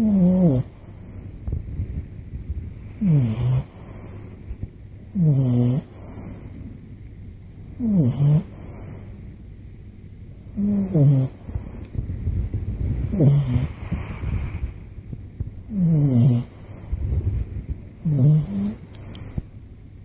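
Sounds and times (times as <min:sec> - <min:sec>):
puppy snoring: 0:00.0 - 0:01.5, 0:02.8 - 0:04.4, 0:05.0 - 0:06.7, 0:07.6 - 0:09.2, 0:10.4 - 0:12.1, 0:12.7 - 0:14.5, 0:15.6 - 0:19.5.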